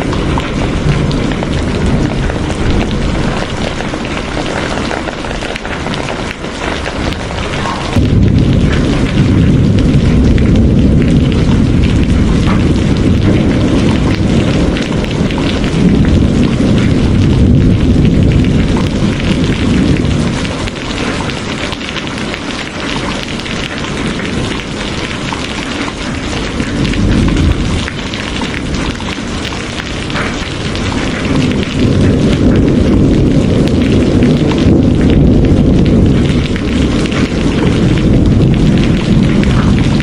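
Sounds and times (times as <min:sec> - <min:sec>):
deep low rumble: 0:00.0 - 0:21.4, 0:23.8 - 0:40.0
heavy rain hissing: 0:00.0 - 0:40.0.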